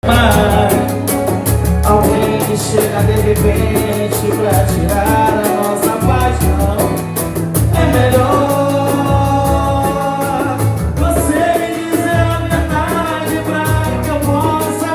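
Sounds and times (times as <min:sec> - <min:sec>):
pulsing bass line: 0:00.0 - 0:14.6
music with singing: 0:00.0 - 0:14.9.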